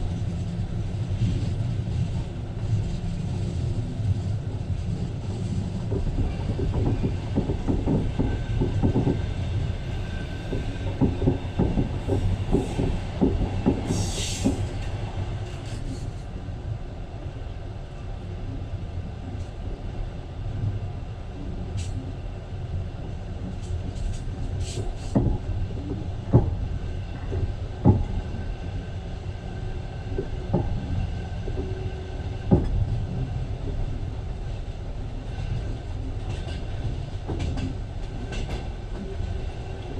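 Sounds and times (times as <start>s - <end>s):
train rumble: 0.0s - 39.9s
wheels clacking over rail joints: 5.8s - 9.4s, 10.5s - 15.9s.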